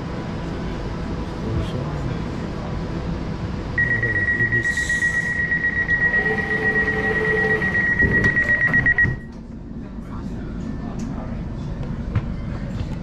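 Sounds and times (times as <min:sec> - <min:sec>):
low train rumble: 0:00.0 - 0:13.0
high-pitched train tone: 0:03.8 - 0:09.3.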